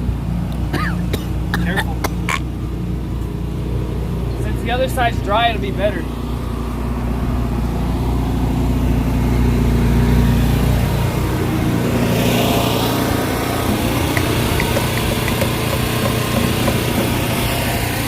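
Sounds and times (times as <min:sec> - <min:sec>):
pressure washer engine running: 0:03.6 - 0:18.0.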